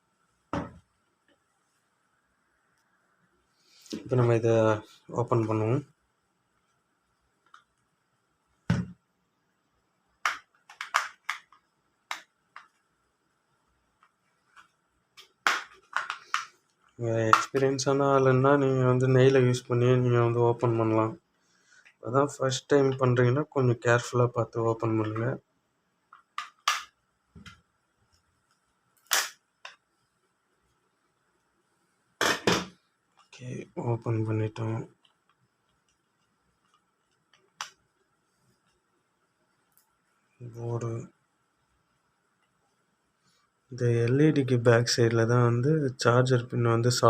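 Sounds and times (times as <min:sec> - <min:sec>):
plastic casing clicking and snapping: 0:10.2 - 0:12.7.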